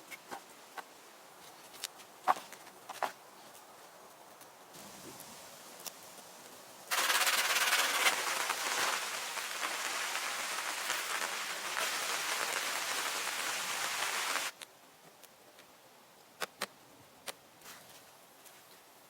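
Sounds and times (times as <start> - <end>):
steady rain falling: 4.7 - 14.6.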